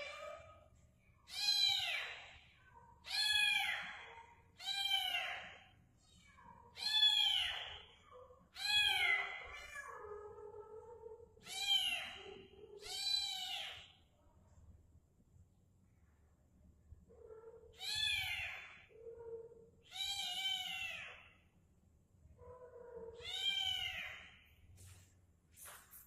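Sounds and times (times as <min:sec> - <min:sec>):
kitten meowing: 0:03.0 - 0:05.6, 0:06.8 - 0:07.9, 0:17.7 - 0:18.9, 0:19.8 - 0:21.3, 0:23.1 - 0:24.3.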